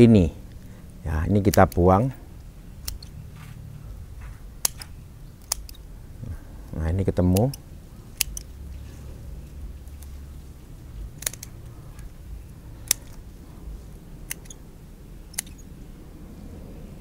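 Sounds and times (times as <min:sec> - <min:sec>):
low steady hum: 0:00.0 - 0:17.0
scissors snipping twigs: 0:00.5 - 0:02.2, 0:02.8 - 0:03.2, 0:04.6 - 0:05.9, 0:06.7 - 0:13.2, 0:14.2 - 0:14.6, 0:15.2 - 0:15.7.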